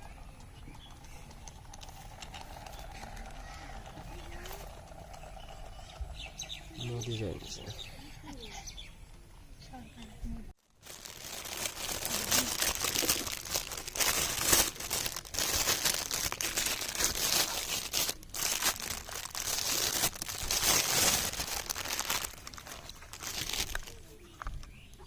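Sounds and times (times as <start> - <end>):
dense crinkling rustling: 10.6 - 24.8.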